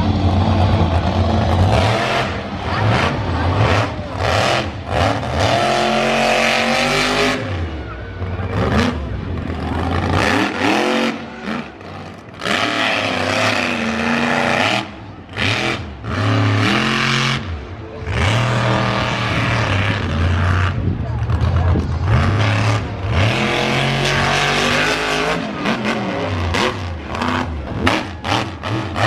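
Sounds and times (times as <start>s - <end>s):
monster truck engine revving: 0.0s - 29.0s.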